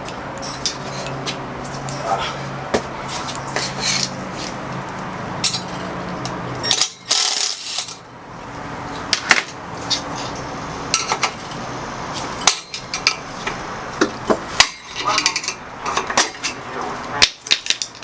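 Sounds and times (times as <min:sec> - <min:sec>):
metal hand tools clinking: 0:06.6 - 0:08.0.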